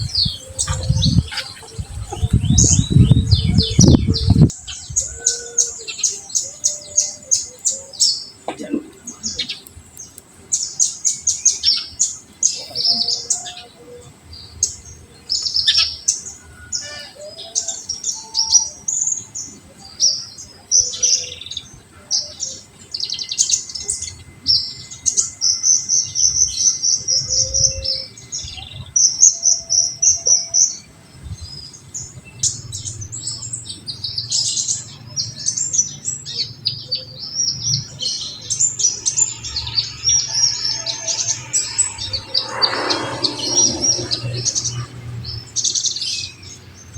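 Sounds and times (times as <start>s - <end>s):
bird singing high-pitched trills: 22.6s - 30.9s, 37.5s - 46.6s.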